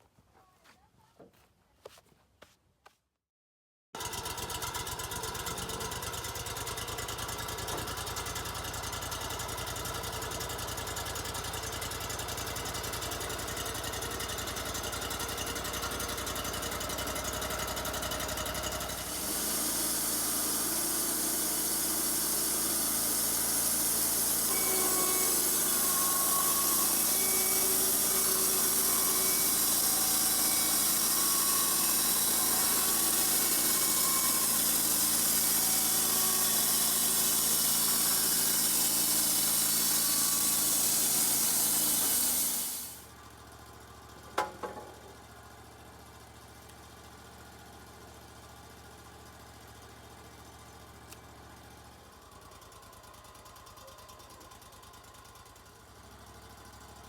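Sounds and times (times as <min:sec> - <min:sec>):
portable sawmill running: 0:04.0 - 0:57.0.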